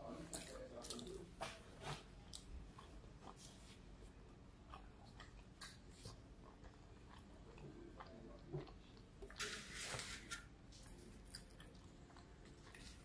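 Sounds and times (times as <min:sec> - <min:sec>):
chewing with closed mouth: 0:01.9 - 0:09.4, 0:10.7 - 0:13.0.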